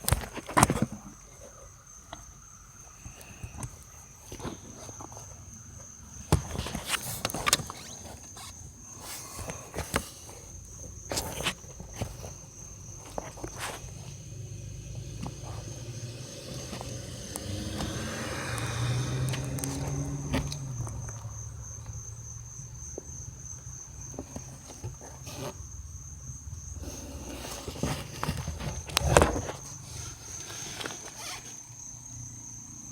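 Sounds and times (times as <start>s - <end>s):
low blower hum: 14.4s - 21.8s.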